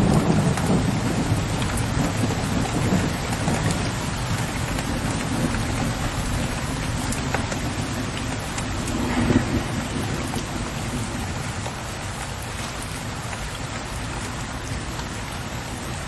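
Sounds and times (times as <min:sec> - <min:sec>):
distant rolling thunder: 0:00.0 - 0:16.0
rain pattering on window ledge: 0:00.0 - 0:16.0
raindrops ticking: 0:00.0 - 0:16.0.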